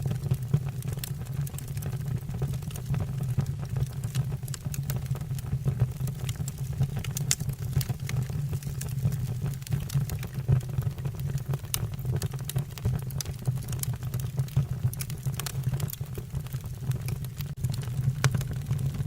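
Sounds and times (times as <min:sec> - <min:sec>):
burning logs crackling and popping: 0:00.0 - 0:19.0
low rumble of flames: 0:00.0 - 0:19.0.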